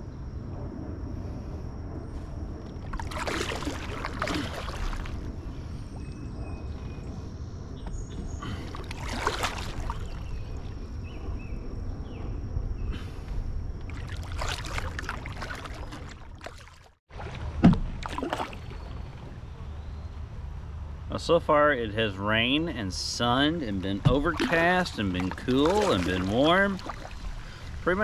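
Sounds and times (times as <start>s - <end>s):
wind rumble on microphone: 0.0s - 28.0s
water splashing: 2.8s - 5.4s, 8.4s - 10.8s, 13.8s - 19.4s, 22.9s - 28.0s.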